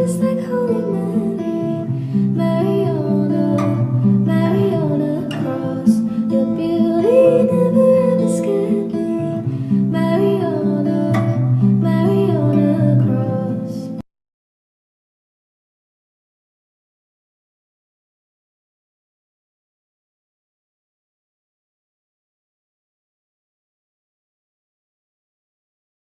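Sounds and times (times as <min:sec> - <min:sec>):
person singing: 0:00.0 - 0:14.0
strummed acoustic guitar: 0:00.0 - 0:14.0.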